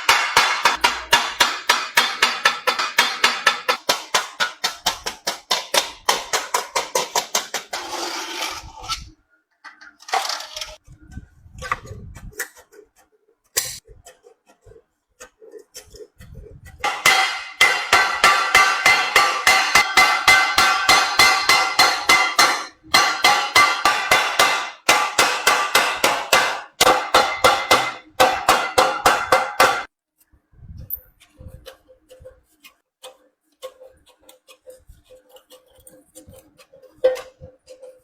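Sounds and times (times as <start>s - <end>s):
hammer on sheet-metal pot: 0.0s - 8.0s, 16.8s - 29.9s.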